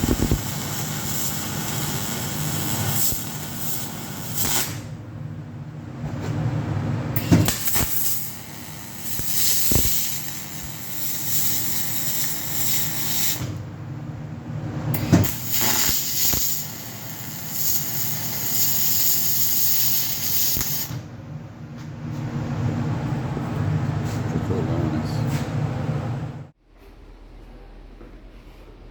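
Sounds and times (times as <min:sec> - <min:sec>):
welding arc hissing: 0:00.0 - 0:05.0, 0:07.4 - 0:13.6, 0:15.2 - 0:21.0
low machine hum: 0:00.0 - 0:09.3, 0:21.0 - 0:28.9.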